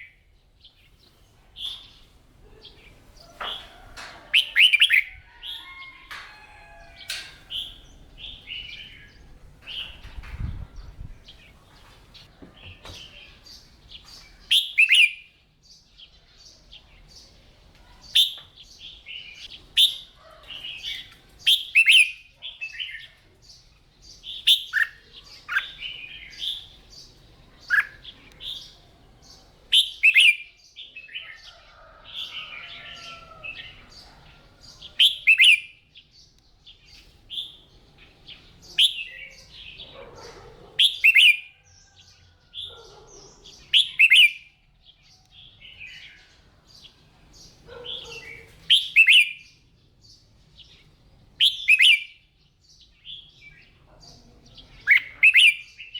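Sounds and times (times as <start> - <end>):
bird whistled song phrases: 48.7 - 49.4, 51.4 - 52.2.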